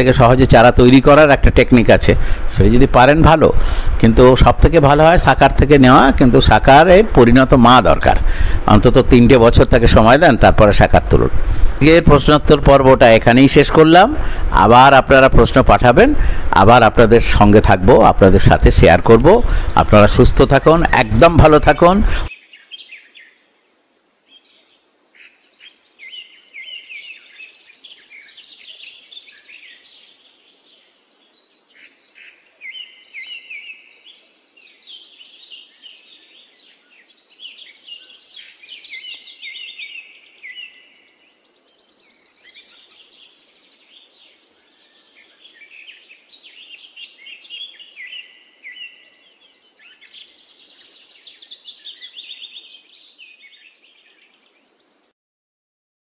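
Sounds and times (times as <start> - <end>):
birds chirping and whistling: 16.2 - 23.4, 24.3 - 55.1.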